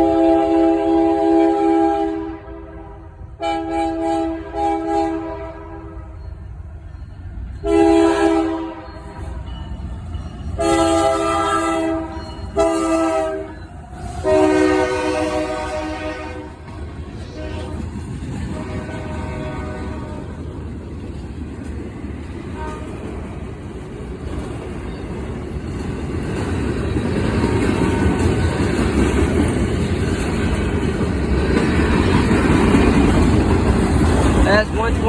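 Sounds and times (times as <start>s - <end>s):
locomotive horn blasts: 0.0s - 6.2s, 7.6s - 9.2s, 10.6s - 20.3s, 22.6s - 23.1s
low rumble of train: 0.0s - 35.0s.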